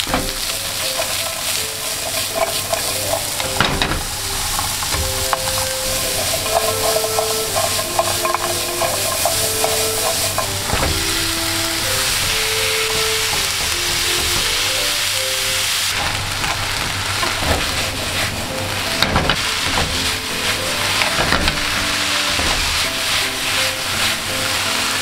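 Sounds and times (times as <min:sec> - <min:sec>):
meat sizzling in a frying pan: 0:00.0 - 0:25.0
light background music: 0:00.2 - 0:15.9, 0:17.4 - 0:25.0
chopsticks clicking on pan: 0:00.4 - 0:15.2.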